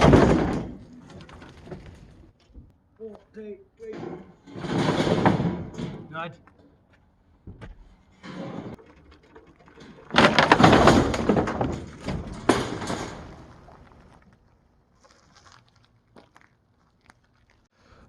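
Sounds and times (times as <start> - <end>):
clattering and knocking: 0.0 - 2.7, 3.9 - 6.8, 7.4 - 13.8.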